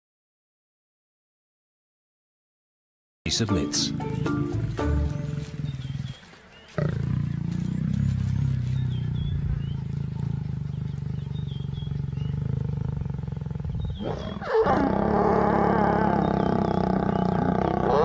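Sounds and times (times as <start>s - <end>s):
lion snarling: 4.1s - 18.0s
lions growling: 4.1s - 18.0s.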